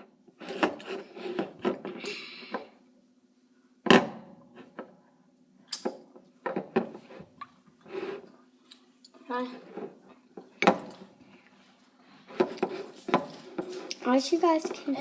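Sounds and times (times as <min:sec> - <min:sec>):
knocks and scrapes of handling: 0:00.0 - 0:02.7, 0:06.4 - 0:08.4, 0:09.2 - 0:15.0.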